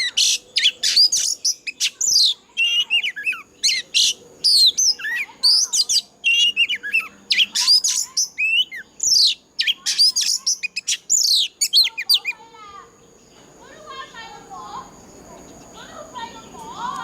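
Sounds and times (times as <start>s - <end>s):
magpie-robin singing: 0.0s - 12.5s.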